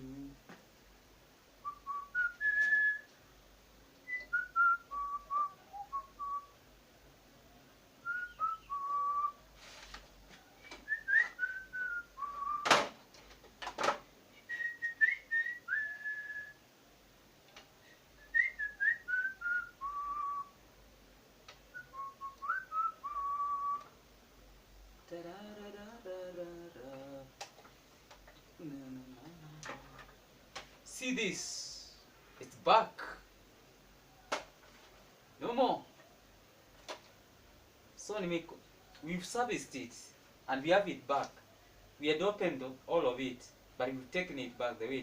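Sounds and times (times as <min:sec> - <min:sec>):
person whistling a tune: 0:01.6 - 0:03.1, 0:08.1 - 0:09.4, 0:10.6 - 0:12.7, 0:14.5 - 0:16.5, 0:18.2 - 0:20.5, 0:21.8 - 0:23.9.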